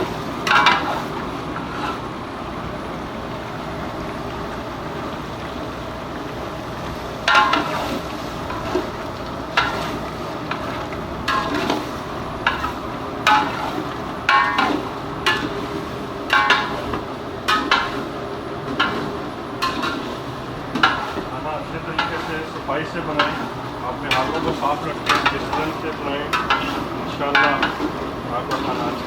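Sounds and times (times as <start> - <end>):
steady frying hiss: 0.0 - 29.0
metal spoon scraping a pot: 26.3 - 27.9.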